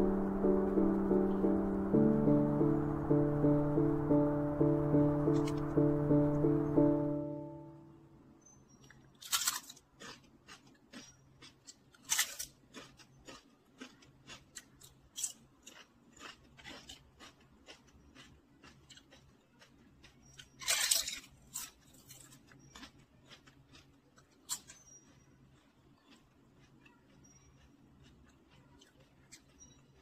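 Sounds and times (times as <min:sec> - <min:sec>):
crunching and chewing snacks: 0:08.7 - 0:30.0.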